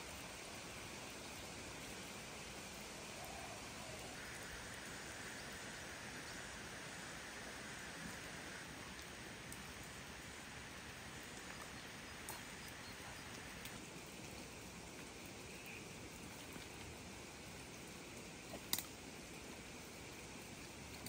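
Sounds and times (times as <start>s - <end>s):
light rain: 0.0s - 21.0s
faint clicks: 18.5s - 19.0s.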